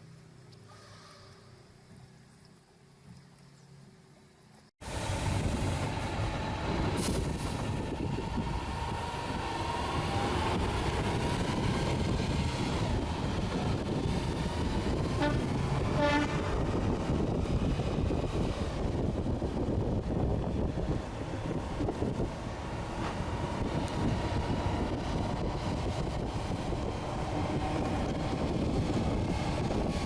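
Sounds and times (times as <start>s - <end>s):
road and wind noise: 1.4s - 30.0s
short horn toots: 15.2s - 16.5s.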